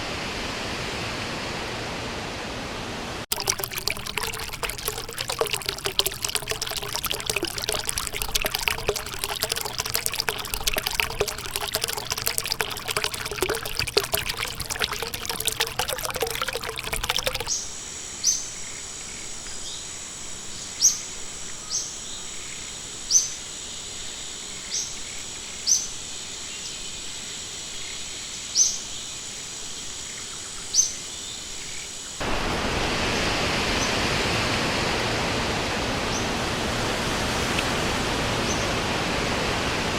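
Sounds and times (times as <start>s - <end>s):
steady rushing water: 0.0s - 17.5s, 32.2s - 39.9s
stream water trickling: 3.3s - 17.6s, 32.2s - 39.9s.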